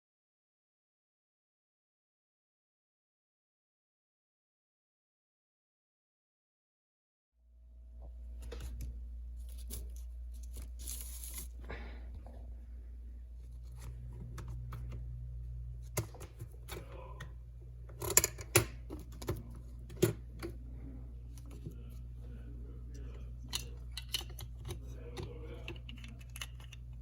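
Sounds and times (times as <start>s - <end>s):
steady low hum: 7.5s - 27.0s.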